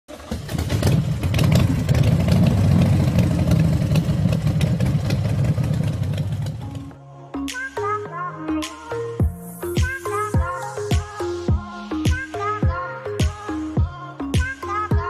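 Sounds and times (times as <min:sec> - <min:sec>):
motorcycle engine rumbling: 0:00.1 - 0:07.0.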